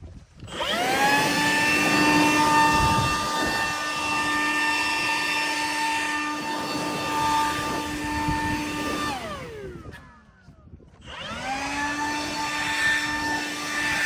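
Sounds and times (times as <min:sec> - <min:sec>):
power tool motor whining: 0:00.3 - 0:14.0.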